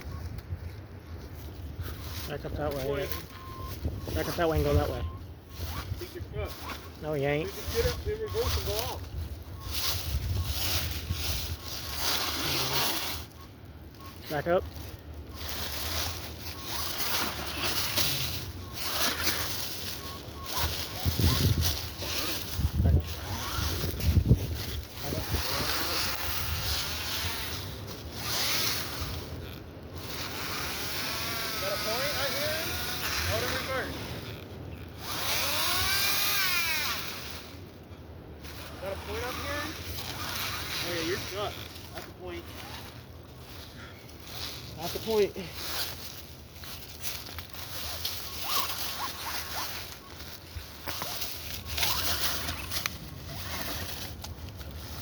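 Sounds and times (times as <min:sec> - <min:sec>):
wind noise on microphone: 0:00.0 - 0:14.3, 0:15.3 - 0:37.7
toy truck rustling over dirt: 0:00.0 - 0:55.0
small electric motor whirring: 0:05.6 - 0:13.4, 0:14.3 - 0:37.8, 0:38.4 - 0:55.0.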